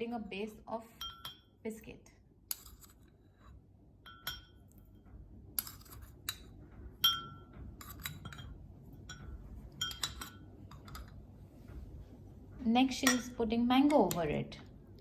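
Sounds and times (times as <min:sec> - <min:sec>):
spoon clinking on glass dish: 0:01.0 - 0:01.5, 0:04.0 - 0:04.8, 0:05.6 - 0:11.2, 0:13.0 - 0:13.4.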